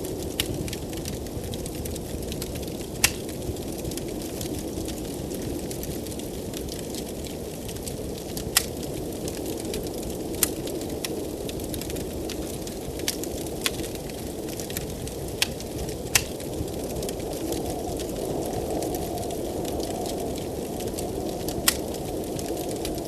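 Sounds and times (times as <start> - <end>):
blizzard wind rushing: 0.0 - 23.0
wood fire crackling: 0.0 - 23.0
sharp fire pops: 0.2 - 4.4, 7.7 - 12.1, 12.9 - 17.6, 21.5 - 23.0.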